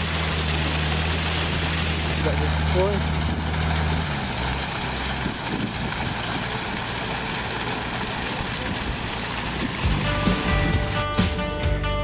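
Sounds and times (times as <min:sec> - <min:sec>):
pump engine running: 0:00.0 - 0:12.0
guitar music: 0:09.8 - 0:12.0.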